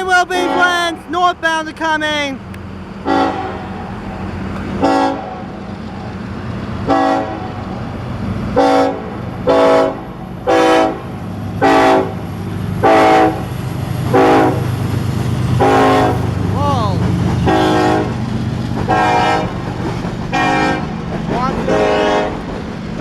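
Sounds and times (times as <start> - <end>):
locomotive engine rumble: 0.0 - 23.0
locomotive air horn blasts: 0.3 - 1.0, 3.0 - 3.9, 4.8 - 5.5, 6.8 - 7.6, 8.6 - 13.5, 14.1 - 14.6, 15.6 - 16.3, 17.4 - 18.2, 18.9 - 19.6, 20.3 - 20.9, 21.6 - 22.4.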